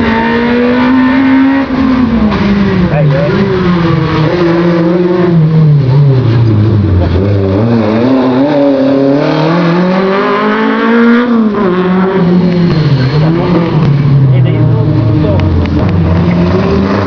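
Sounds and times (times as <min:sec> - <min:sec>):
racing car engines revving: 0:00.0 - 0:17.0.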